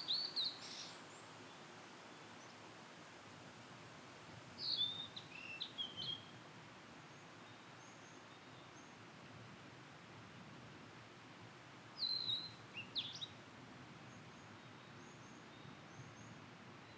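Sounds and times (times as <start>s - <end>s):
faint high bird chirps: 0.0s - 1.0s, 12.0s - 13.3s
faint hiss: 0.0s - 16.9s.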